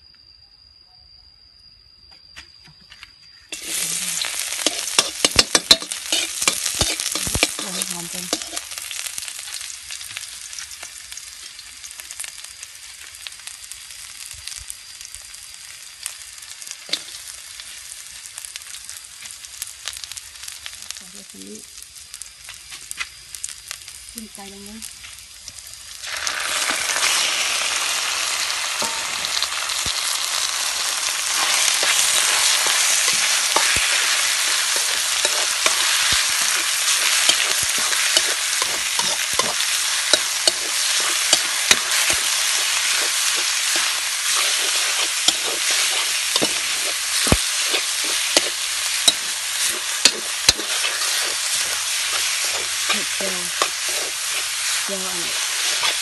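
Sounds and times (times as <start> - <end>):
metal spoon scraping wok: 3.5 - 9.0, 30.7 - 56.0
chicken sizzling in hot oil: 3.5 - 56.0.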